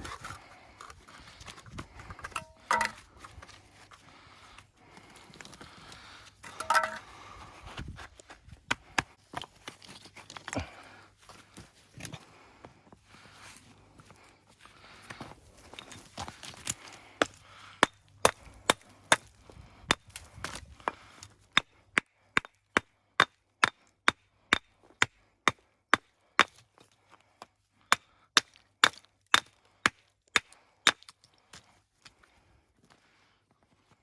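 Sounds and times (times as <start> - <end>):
stones scuffling: 0.0 - 4.0, 4.9 - 12.2, 15.1 - 17.4
hammer striking stone: 2.4 - 3.0, 6.6 - 7.0.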